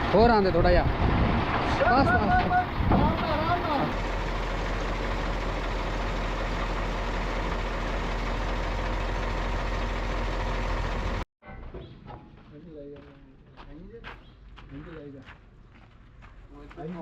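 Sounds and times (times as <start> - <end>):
truck engine idling: 0.0 - 11.2.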